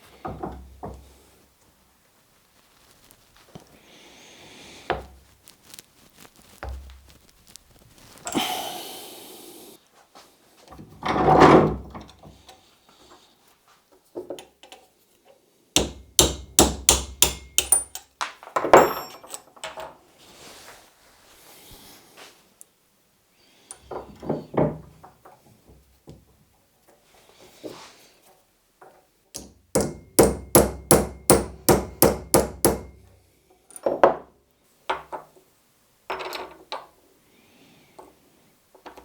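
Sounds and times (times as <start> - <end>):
tools knocking and clicking: 15.8 - 20.0, 28.8 - 33.0.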